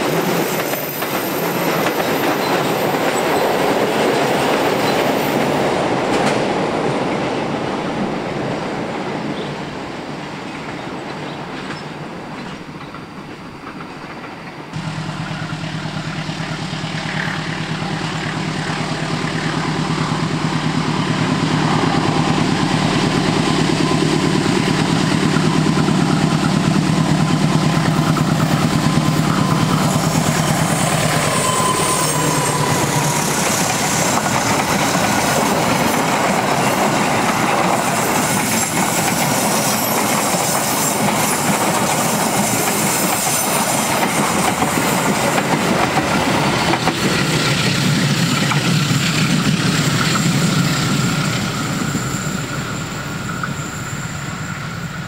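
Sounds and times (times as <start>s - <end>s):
diesel locomotive engine hum: 0.0s - 55.0s
train wheels rumbling on rails: 0.0s - 55.0s.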